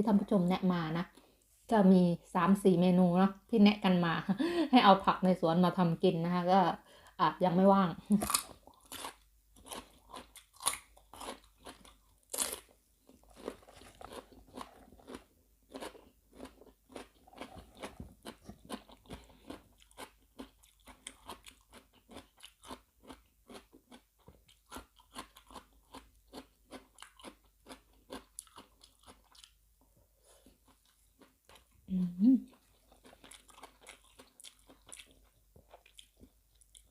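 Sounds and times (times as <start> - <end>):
person chewing crunchy food: 8.1 - 31.8, 32.5 - 36.9.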